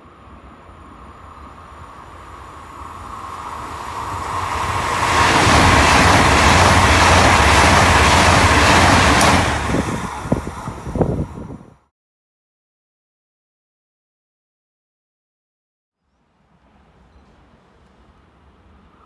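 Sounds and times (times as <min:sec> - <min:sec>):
high-speed train passing: 0:00.0 - 0:11.8, 0:16.3 - 0:19.0.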